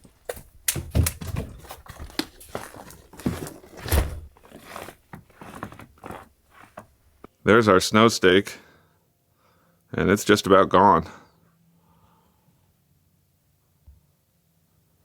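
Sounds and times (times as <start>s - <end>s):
knocking thuds: 0.0s - 7.2s
footsteps: 0.0s - 7.3s.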